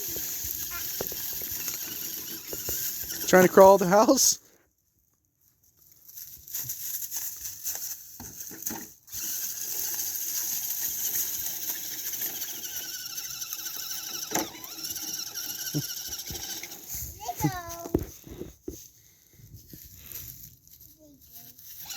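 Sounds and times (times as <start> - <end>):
electric motor and gears whining: 0.0 - 4.3, 9.1 - 17.1.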